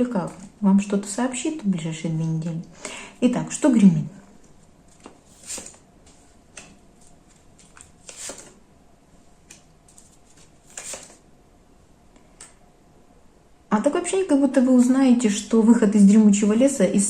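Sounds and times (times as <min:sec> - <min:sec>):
cards sliding swishes: 0:04.9 - 0:08.6, 0:09.9 - 0:11.2.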